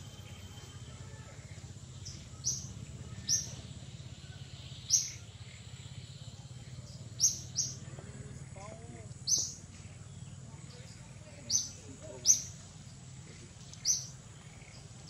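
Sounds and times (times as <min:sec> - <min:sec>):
steady low hum: 0:00.0 - 0:15.0
high bird chirps: 0:01.9 - 0:03.7, 0:04.7 - 0:06.0, 0:06.8 - 0:07.8, 0:09.2 - 0:10.3, 0:13.7 - 0:14.9.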